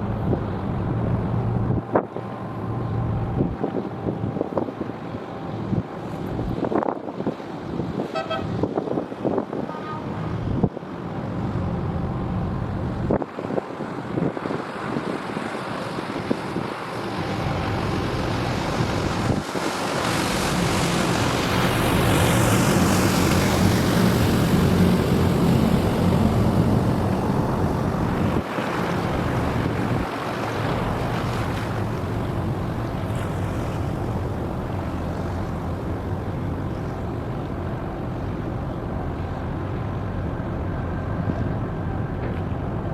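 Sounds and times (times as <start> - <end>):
outdoor traffic: 0.0 - 42.9
wind noise: 0.0 - 42.9.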